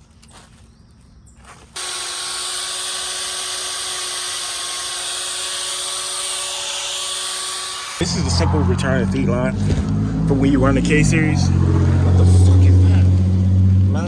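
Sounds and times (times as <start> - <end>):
electric motor whirring with hiss: 1.8 - 8.1.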